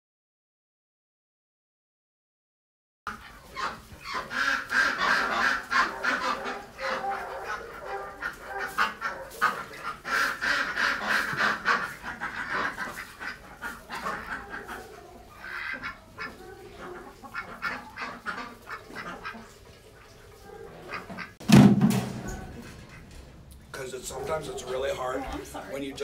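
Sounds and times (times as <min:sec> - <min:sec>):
ducks quacking and honking: 0:03.1 - 0:26.0
loud thump: 0:21.4 - 0:23.2.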